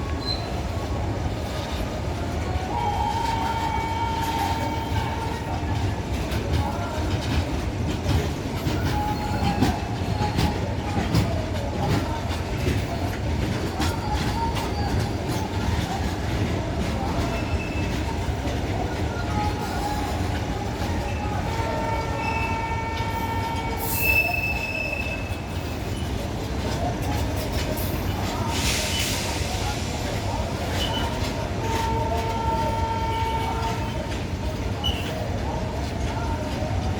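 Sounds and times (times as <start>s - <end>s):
train wagons rumbling: 0.0s - 36.9s
high wheel squeals: 21.9s - 26.2s.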